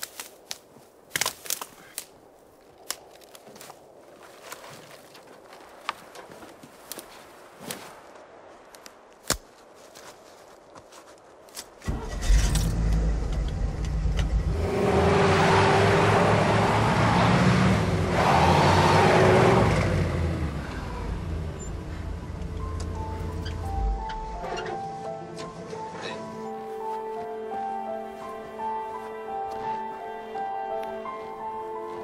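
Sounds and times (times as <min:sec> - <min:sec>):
vehicle engine revving: 0:11.9 - 0:24.8.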